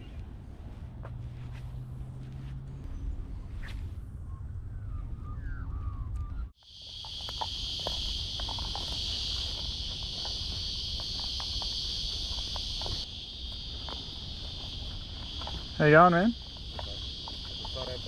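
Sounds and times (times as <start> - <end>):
insects trilling: 6.6 - 18.0.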